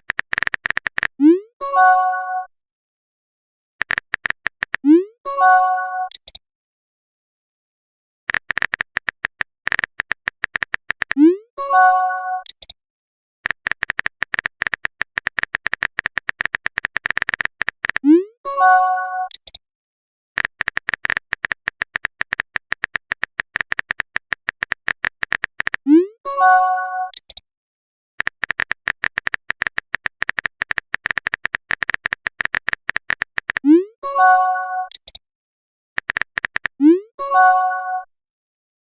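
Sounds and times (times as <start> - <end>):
rapid typing clicks: 0.0 - 1.2, 3.8 - 4.8, 8.3 - 11.2, 13.4 - 18.0, 20.4 - 25.8, 28.2 - 33.7, 36.0 - 36.8
message sent chime: 34.1 - 34.9, 37.2 - 38.1.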